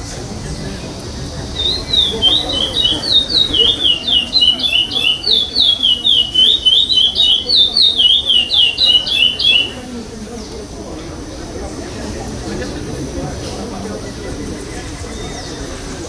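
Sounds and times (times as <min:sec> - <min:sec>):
finch singing whistled notes: 0:01.6 - 0:09.9.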